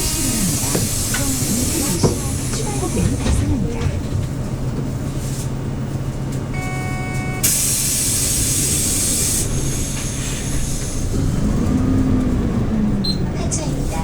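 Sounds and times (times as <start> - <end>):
bus engine idling: 0.0 - 14.0
compressed air hiss: 7.4 - 11.1.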